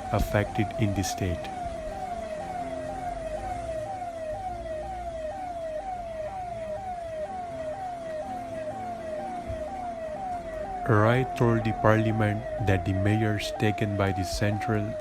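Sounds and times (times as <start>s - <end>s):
siren whooping: 0.0s - 15.0s.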